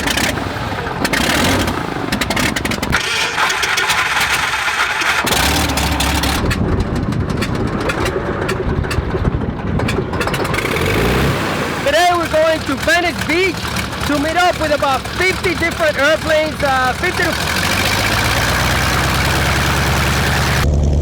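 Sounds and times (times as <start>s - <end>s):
light aircraft engine running: 0.0s - 21.0s.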